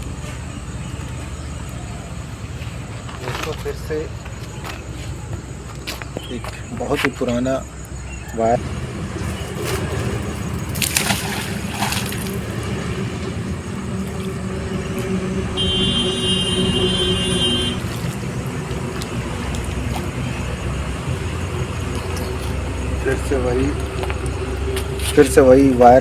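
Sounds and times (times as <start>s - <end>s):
road traffic rumble: 0.0s - 26.0s
high steady tone: 13.2s - 17.8s.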